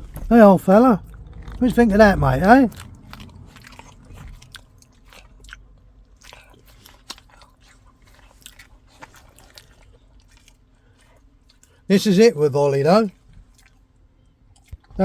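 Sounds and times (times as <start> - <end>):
dog chewing bread: 0.0 - 11.9, 13.1 - 15.0.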